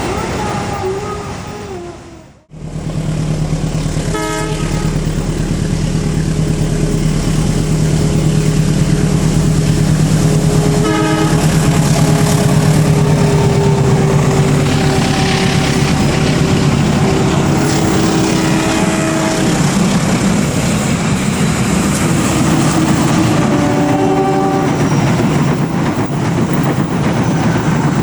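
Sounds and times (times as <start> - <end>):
locomotive drone passing: 0.0 - 28.0
train horn toots: 4.0 - 5.6, 9.1 - 20.4, 22.0 - 25.4.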